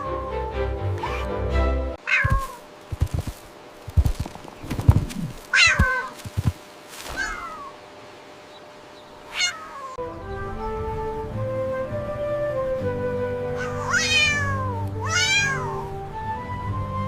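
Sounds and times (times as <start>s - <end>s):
background music: 0.0s - 2.0s, 10.0s - 17.0s
cat meowing: 2.0s - 2.6s, 5.5s - 6.2s, 7.2s - 7.8s, 9.3s - 10.0s, 13.6s - 15.9s
low thuds: 2.2s - 6.6s.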